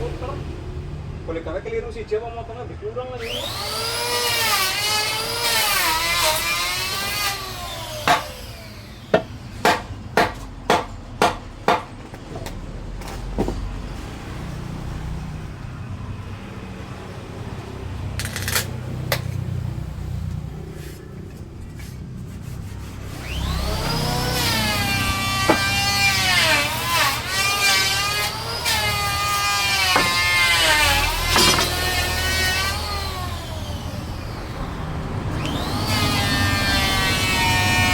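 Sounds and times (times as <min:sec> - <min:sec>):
tool knocking on wood: 0:08.1 - 0:08.4, 0:09.1 - 0:12.6, 0:25.5 - 0:25.8, 0:29.9 - 0:30.3, 0:31.3 - 0:31.8.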